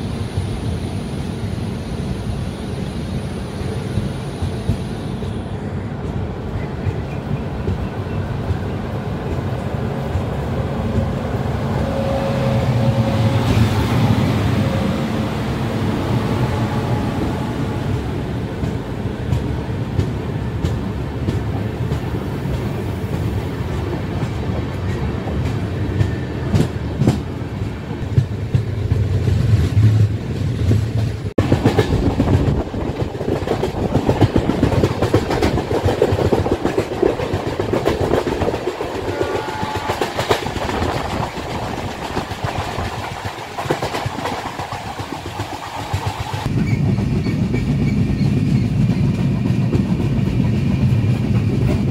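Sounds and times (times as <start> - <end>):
train rumble: 0.0 - 51.9
train wheels clattering over joints: 28.0 - 51.9.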